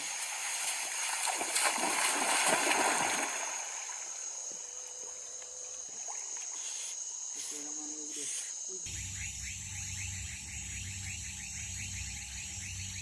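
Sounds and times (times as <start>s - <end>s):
water splashing: 0.0s - 4.3s
high insect drone: 0.0s - 13.0s.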